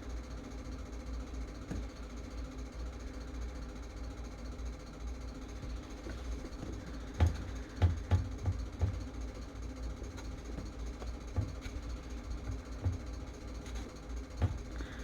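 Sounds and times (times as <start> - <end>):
steady low hum: 0.0 - 15.0
tools knocking and tapping: 6.6 - 9.2, 10.2 - 14.8.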